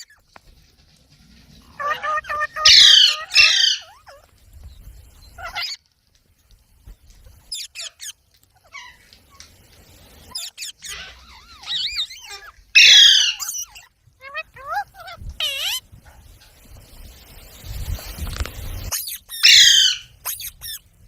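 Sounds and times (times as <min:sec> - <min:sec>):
parrot chirps and whistles: 0:01.8 - 0:04.3, 0:05.3 - 0:05.8, 0:07.4 - 0:09.0, 0:10.2 - 0:15.8, 0:18.8 - 0:20.9
parrot squawk: 0:01.8 - 0:04.3, 0:05.4 - 0:05.8, 0:07.5 - 0:09.0, 0:10.3 - 0:15.8, 0:18.9 - 0:20.8.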